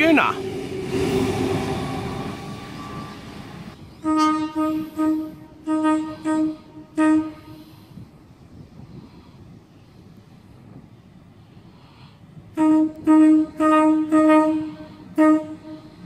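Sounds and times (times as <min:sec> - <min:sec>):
train horn short blasts: 0:04.0 - 0:07.8, 0:12.6 - 0:16.0.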